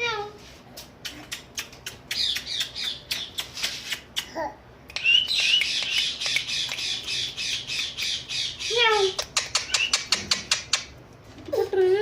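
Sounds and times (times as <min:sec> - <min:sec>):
parrot squeaky chattering calls: 0:02.1 - 0:04.1, 0:05.0 - 0:11.0
parrot clicking: 0:04.9 - 0:08.2, 0:09.1 - 0:11.0.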